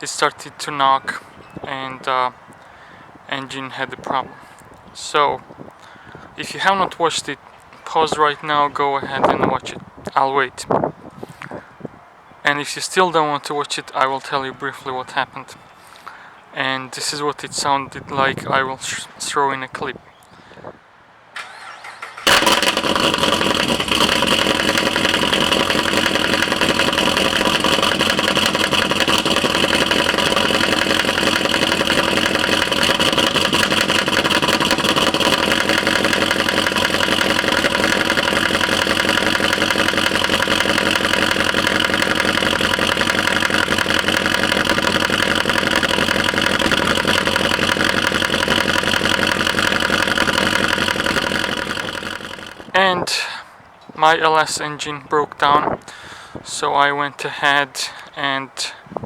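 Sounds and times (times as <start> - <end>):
car engine starting: 21.4 - 52.7
engine running with a knock: 22.2 - 52.7.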